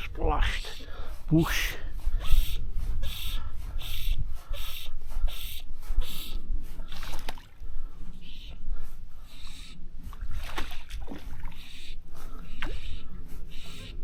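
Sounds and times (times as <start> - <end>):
low wind rumble on microphone: 0.0 - 14.0
water splashing and sloshing: 6.7 - 8.2, 10.0 - 13.4.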